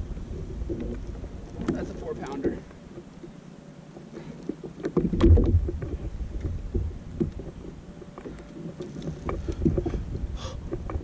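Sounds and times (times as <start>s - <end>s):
low rumble: 5.0s - 7.9s.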